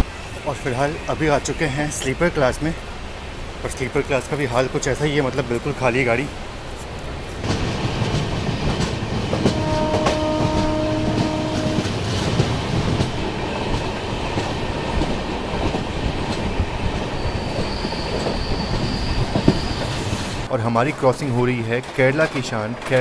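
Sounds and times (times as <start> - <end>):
train rumble and wheel clatter: 0.0 - 23.0
train horn: 9.3 - 12.0
faint high wheel squeal: 17.0 - 20.4.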